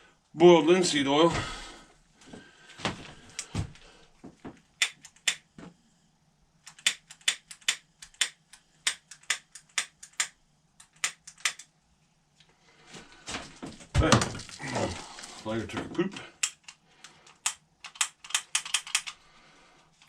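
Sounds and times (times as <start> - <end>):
faint steady hum: 0.0 - 20.0
sharp short clicks: 6.7 - 11.7.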